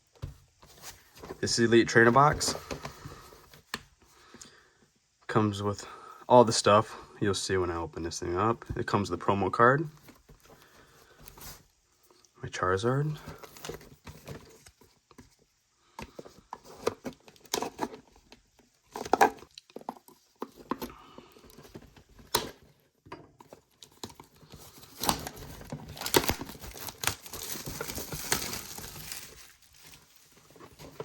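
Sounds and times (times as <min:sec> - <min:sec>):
plastic wrapping crinkling: 0:23.7 - 0:31.0.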